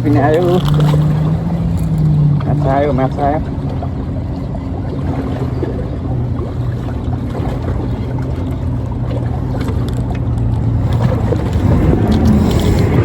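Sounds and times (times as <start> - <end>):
low motor hum: 0.0 - 13.0
wind noise on microphone: 10.6 - 13.0.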